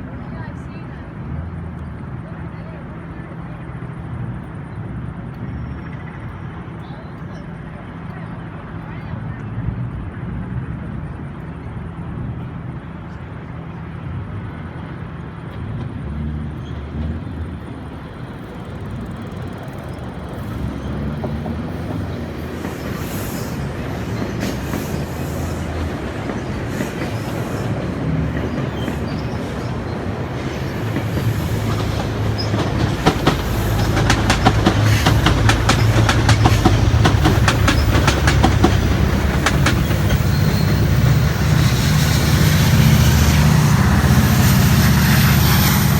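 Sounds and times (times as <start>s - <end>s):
train rumbling: 0.0s - 45.9s
train wheels clickety-clack: 14.8s - 45.9s.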